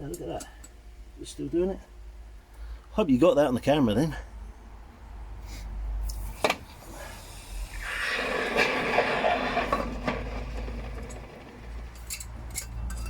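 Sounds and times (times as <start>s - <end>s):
rough hiss: 5.5s - 8.9s.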